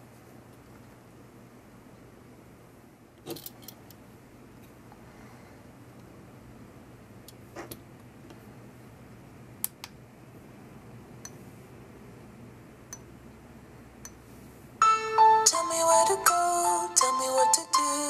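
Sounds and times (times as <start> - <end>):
music from phone speaker: 14.8 - 18.0.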